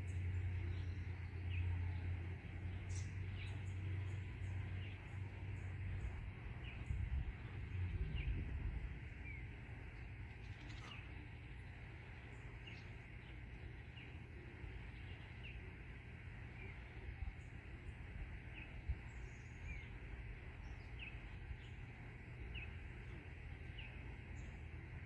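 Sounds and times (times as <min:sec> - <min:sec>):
songbird chirping sharply: 0:00.0 - 0:25.0
low rumble: 0:03.0 - 0:10.4.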